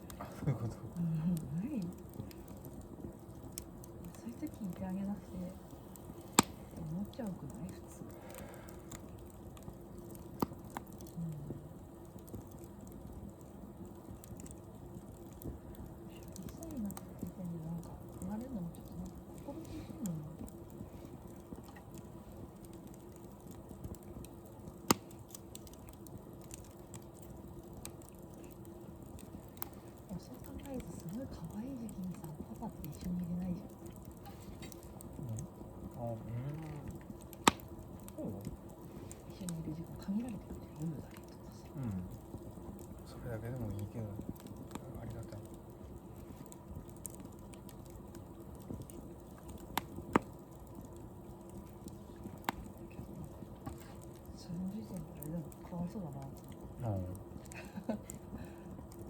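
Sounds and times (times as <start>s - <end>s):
wood fire crackling: 0.0s - 59.0s
sharp pops: 5.9s - 6.8s, 22.8s - 29.8s, 36.6s - 38.1s, 47.0s - 50.5s.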